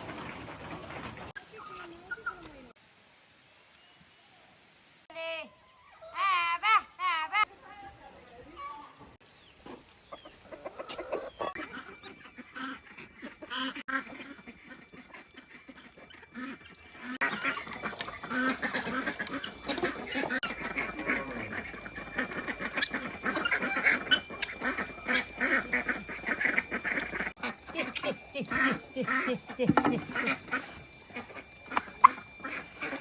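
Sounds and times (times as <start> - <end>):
farmyard fowl calling: 9.6 - 33.0.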